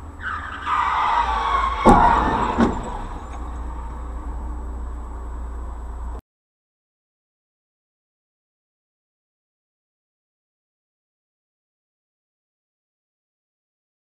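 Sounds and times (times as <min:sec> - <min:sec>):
road noise: 0:00.0 - 0:06.2
tyres skidding: 0:00.0 - 0:06.2
car crash impacts: 0:00.2 - 0:04.5.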